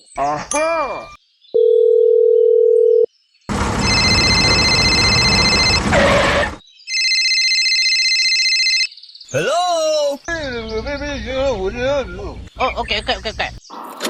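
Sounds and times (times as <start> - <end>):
electronic beep: 3.8 - 5.8.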